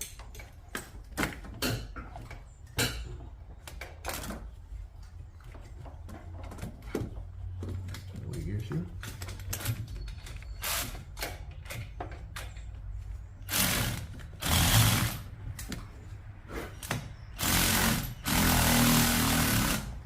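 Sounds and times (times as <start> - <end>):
power tool driving bolts: 9.0 - 12.5, 13.5 - 15.3, 16.8 - 20.0.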